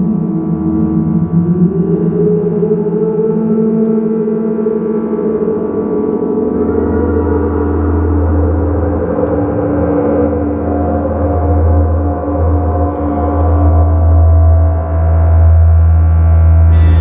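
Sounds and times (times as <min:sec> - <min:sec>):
synthesizer ambient drone: 0:00.0 - 0:17.0.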